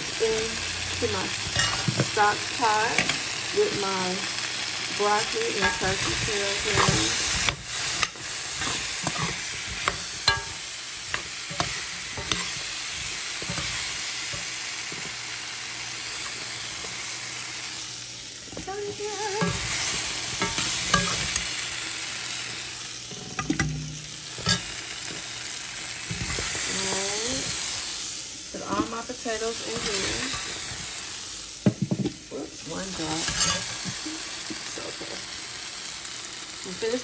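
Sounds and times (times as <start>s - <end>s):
potatoes sizzling in a frying pan: 0.0s - 37.0s
metal spoon scraping a pan: 1.4s - 3.8s, 5.0s - 15.2s, 19.3s - 21.6s, 23.1s - 24.8s, 33.0s - 33.8s.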